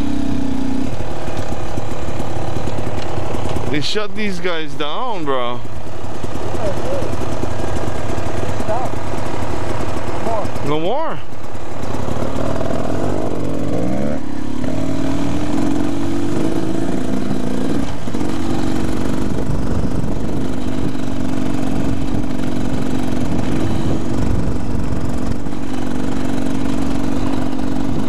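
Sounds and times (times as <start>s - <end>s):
dirt bike engine running: 0.0s - 28.0s.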